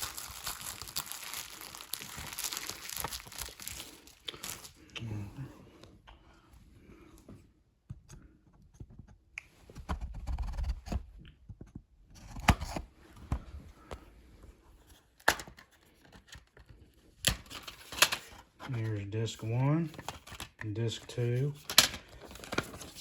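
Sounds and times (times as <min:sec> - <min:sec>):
plastic shrink wrap tearing: 0:00.0 - 0:04.8.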